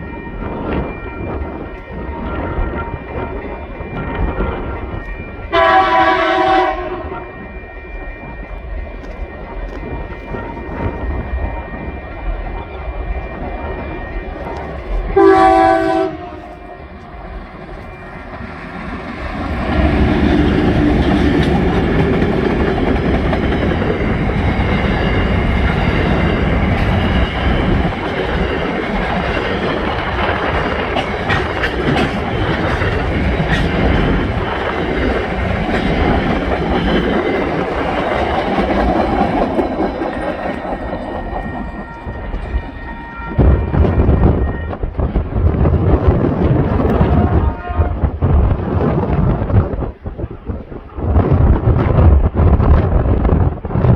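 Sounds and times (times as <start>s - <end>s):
locomotive engine running: 1.0s - 47.5s
locomotive horn blast: 5.5s - 7.4s, 15.2s - 17.0s, 46.9s - 48.2s
train wheels clattering over rails: 8.0s - 47.4s.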